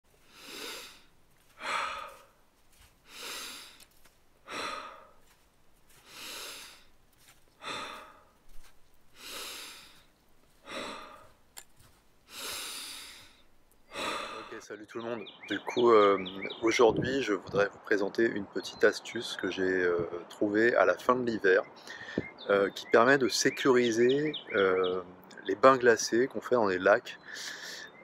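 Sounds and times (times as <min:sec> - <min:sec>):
person breathing deeply through mouth: 0:00.2 - 0:02.4, 0:03.0 - 0:05.3, 0:05.9 - 0:06.9, 0:07.6 - 0:08.4, 0:09.1 - 0:11.4, 0:12.3 - 0:14.6, 0:21.8 - 0:22.3.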